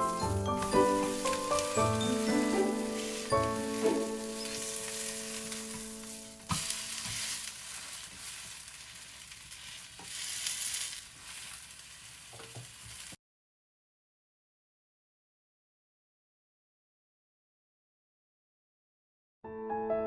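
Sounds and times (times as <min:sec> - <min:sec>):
batter sizzling in hot oil: 0:00.0 - 0:13.2.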